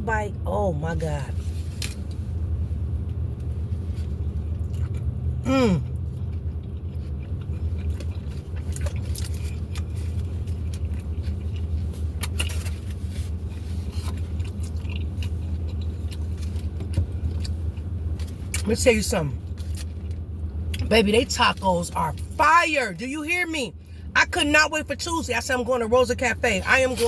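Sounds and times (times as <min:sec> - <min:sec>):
steady low rumble: 0:00.0 - 0:27.0
chewing and crunching: 0:03.0 - 0:18.7, 0:19.4 - 0:20.9.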